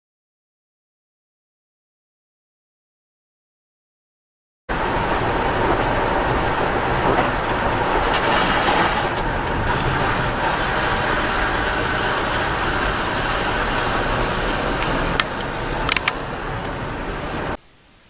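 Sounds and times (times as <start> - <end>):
vehicle road and engine noise: 4.7 - 17.6.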